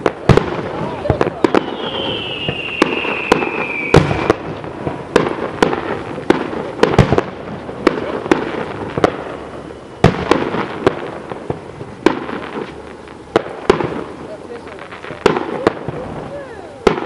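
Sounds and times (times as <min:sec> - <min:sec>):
firework bangs: 0:00.0 - 0:17.0
fireworks crackling: 0:00.0 - 0:17.0
heavy firework booms: 0:00.0 - 0:17.0
high firework whistle: 0:00.7 - 0:04.6, 0:08.5 - 0:11.0.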